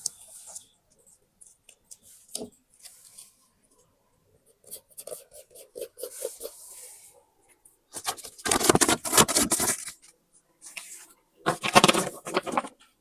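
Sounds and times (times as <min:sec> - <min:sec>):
paper taps and rustles: 0:11.5 - 0:12.7.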